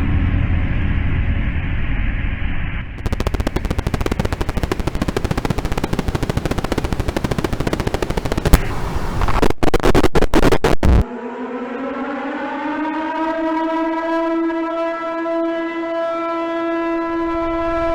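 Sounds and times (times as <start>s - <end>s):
automatic machine-gun fire: 3.0s - 11.0s.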